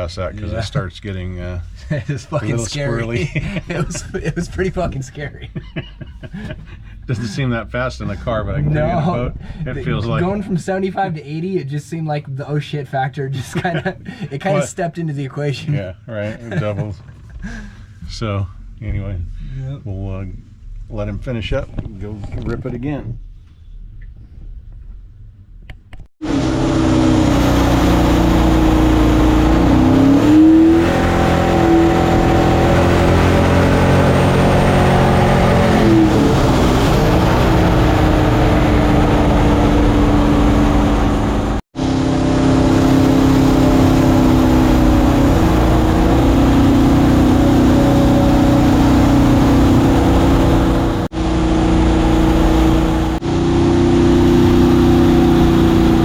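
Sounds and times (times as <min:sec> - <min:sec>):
boat engine running hard: 0:41.9 - 0:56.0.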